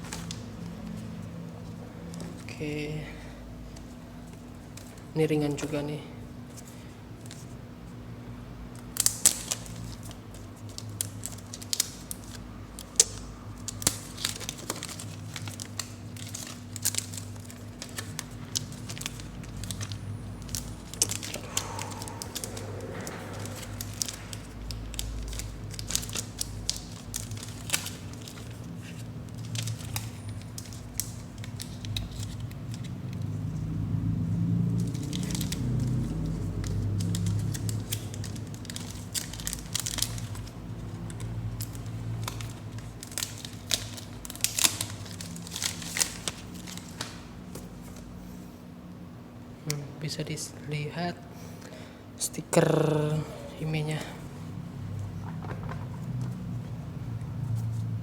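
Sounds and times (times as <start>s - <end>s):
steady low hum: 0.0s - 58.0s
packaging crinkling and rustling: 8.7s - 33.7s, 34.5s - 48.4s, 53.9s - 58.0s.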